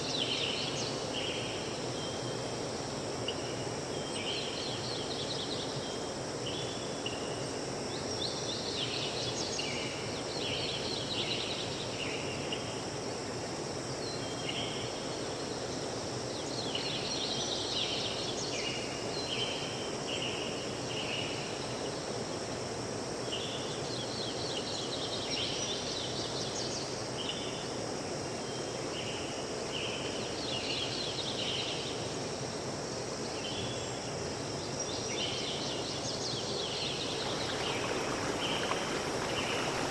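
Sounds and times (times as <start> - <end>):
high chirping calls: 37.0 - 39.9.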